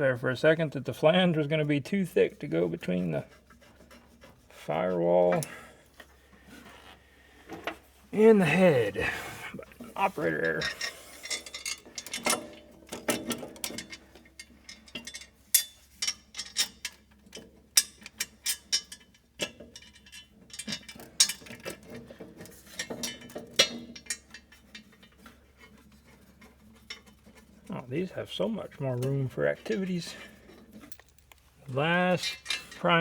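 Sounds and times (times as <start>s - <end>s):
hand tools clicking and clinking: 7.5s - 27.8s, 28.9s - 33.0s.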